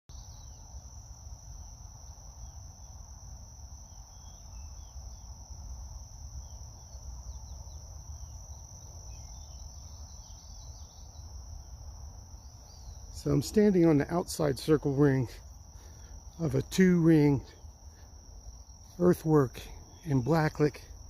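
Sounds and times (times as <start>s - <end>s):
faint bird chirps: 0.1s - 0.8s, 3.9s - 5.4s, 6.4s - 11.4s, 12.4s - 13.6s
crickets trilling: 0.1s - 21.0s.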